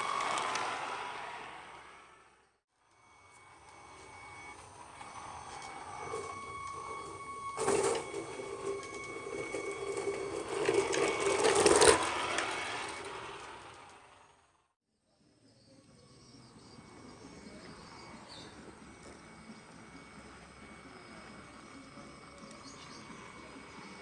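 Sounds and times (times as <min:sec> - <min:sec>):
electric motors whining: 0:00.0 - 0:14.6, 0:16.2 - 0:24.0
rattling surges: 0:03.8 - 0:14.6.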